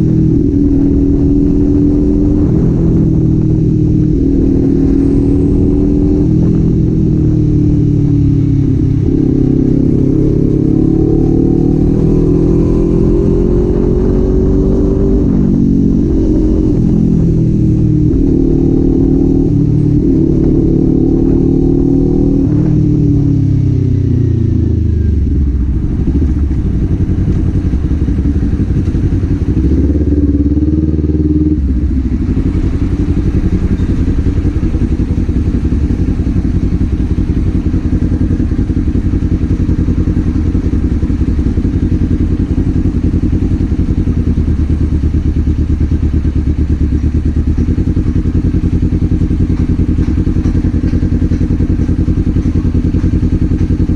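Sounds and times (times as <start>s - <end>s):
motorcycle engine and exhaust: 0.0s - 53.9s.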